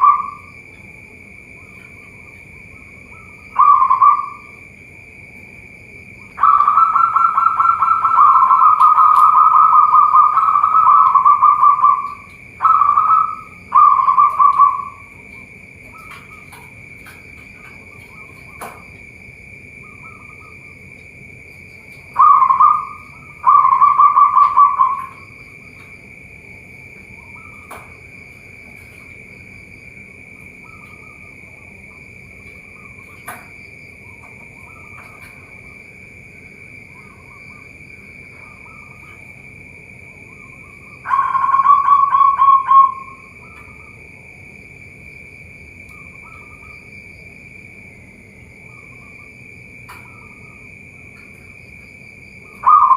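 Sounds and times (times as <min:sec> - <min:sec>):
high-pitched drone: 0:00.0 - 0:00.5, 0:01.8 - 0:04.6, 0:06.3 - 0:15.2, 0:22.2 - 0:25.4, 0:41.0 - 0:43.4, 0:52.6 - 0:52.9
dove cooing: 0:00.0 - 0:00.7, 0:01.6 - 0:04.6, 0:06.3 - 0:18.8, 0:21.8 - 0:25.9, 0:40.3 - 0:44.0, 0:52.4 - 0:52.9.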